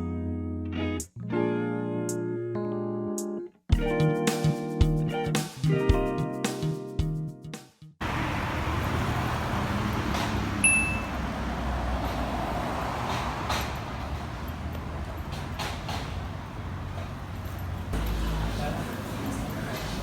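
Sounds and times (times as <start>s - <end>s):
short high beep: 10.6s - 11.1s.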